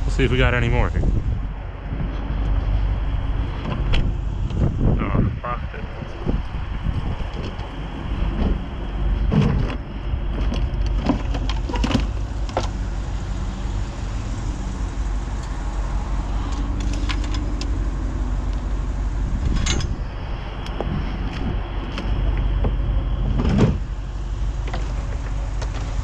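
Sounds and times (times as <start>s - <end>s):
steady low rumble: 0.0s - 26.0s
scrap clanking in a dumpster: 8.3s - 12.7s.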